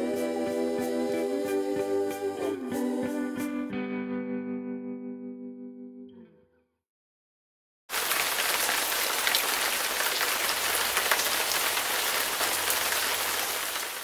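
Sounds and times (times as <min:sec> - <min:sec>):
water spray hissing on poncho: 0:07.9 - 0:14.0.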